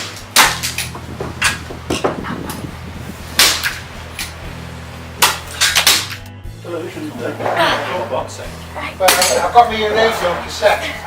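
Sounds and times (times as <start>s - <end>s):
low steady hum: 0.0s - 11.0s
sharp knocks: 0.4s - 2.7s.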